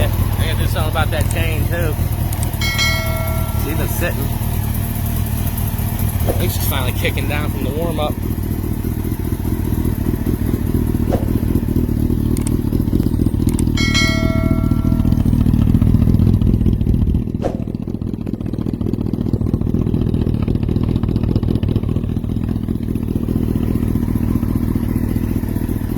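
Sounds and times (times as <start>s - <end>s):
motorcycle engine idling: 0.0s - 25.9s
short high tone: 13.8s - 15.5s.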